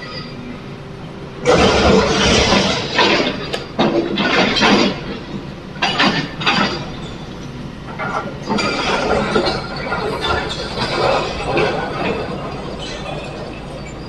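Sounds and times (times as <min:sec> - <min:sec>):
steady low hum: 0:06.8 - 0:14.0.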